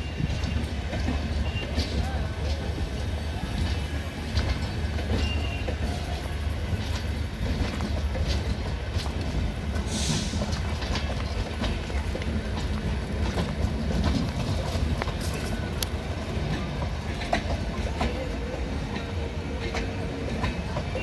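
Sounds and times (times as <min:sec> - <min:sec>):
train coaches rumbling past: 0:00.0 - 0:21.0
wheels clicking over rail joints: 0:00.0 - 0:21.0
brief hiss: 0:09.9 - 0:10.6.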